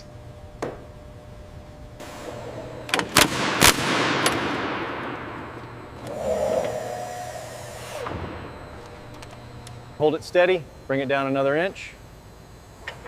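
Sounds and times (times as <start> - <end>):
sharp bangs: 3.0 - 5.9.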